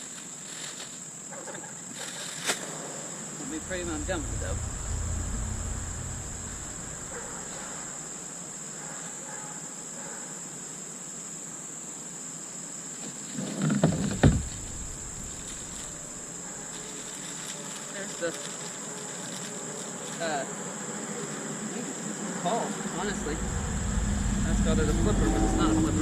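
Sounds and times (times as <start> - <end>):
insect drone: 2.3 - 9.0, 11.4 - 26.0
knocks and thuds: 13.8 - 16.0.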